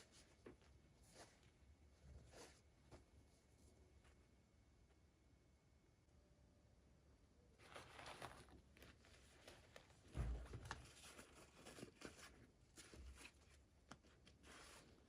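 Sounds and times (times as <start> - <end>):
packaging rustling: 7.6 - 14.9
dull thump: 10.1 - 10.8.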